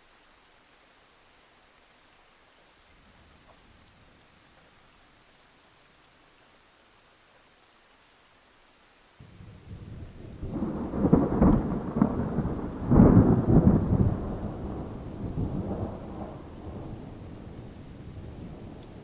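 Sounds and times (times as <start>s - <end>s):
rain falling: 0.0s - 19.0s
thunder clap and rumble: 9.3s - 19.0s.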